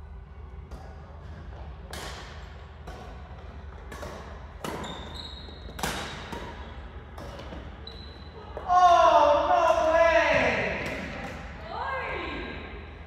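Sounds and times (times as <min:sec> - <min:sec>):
rackets hitting shuttlecock: 0:00.7 - 0:07.8, 0:09.7 - 0:11.6.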